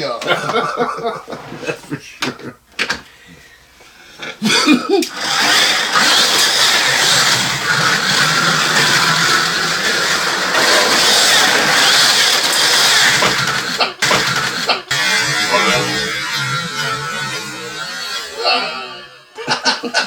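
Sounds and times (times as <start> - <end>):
slot car motors whining: 5.0 - 19.8.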